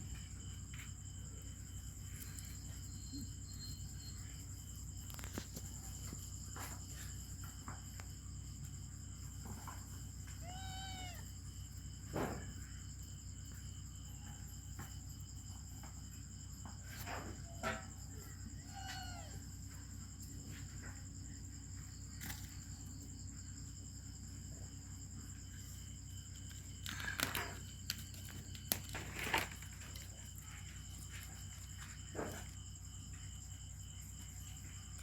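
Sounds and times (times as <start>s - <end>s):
kitten mewing: 10.4s - 11.2s.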